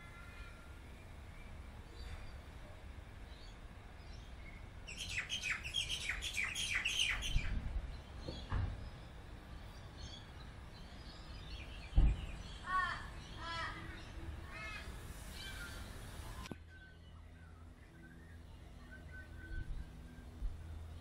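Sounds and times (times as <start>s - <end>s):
birds chirping: 0.0s - 21.0s
low steady rumble: 7.2s - 21.0s.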